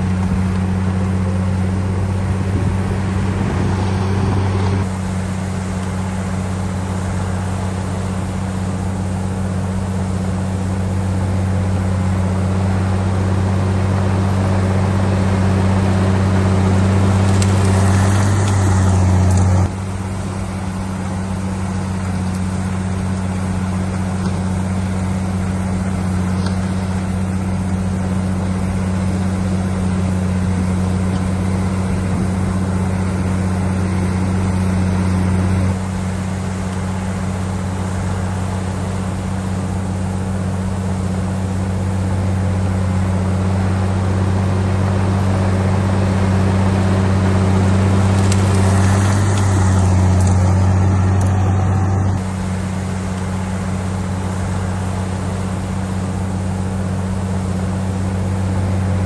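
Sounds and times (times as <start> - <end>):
heavy diesel engine droning: 0.0 - 59.0.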